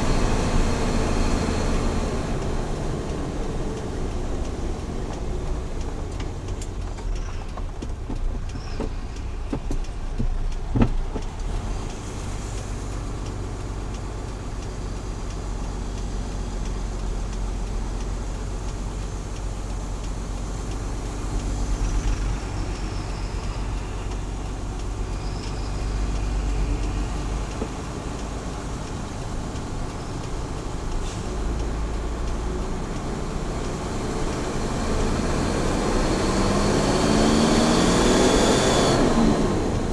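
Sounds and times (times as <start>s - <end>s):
truck engine and road drone: 0.0s - 39.9s.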